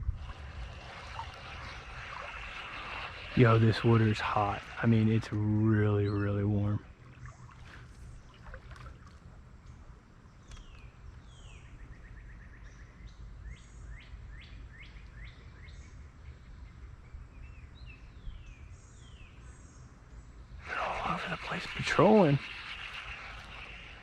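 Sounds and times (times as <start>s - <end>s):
fast bird trill: 0.4s - 5.2s, 20.6s - 24.0s
songbird chirping: 1.3s - 24.0s.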